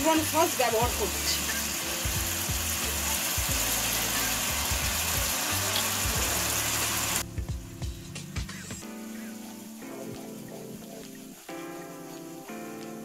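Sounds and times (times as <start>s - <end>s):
vegetables sizzling in a wok: 0.0s - 8.2s
background music with low beat: 0.0s - 13.0s.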